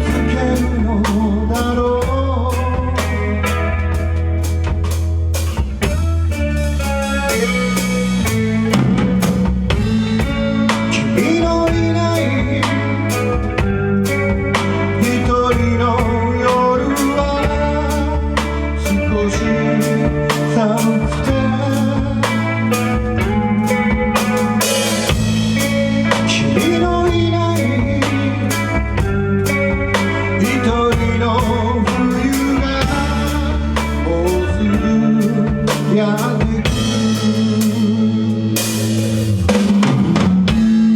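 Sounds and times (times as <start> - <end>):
live band playing: 0.0 - 40.9
drum kit hitting: 4.0 - 16.2, 21.3 - 28.3, 38.6 - 40.9.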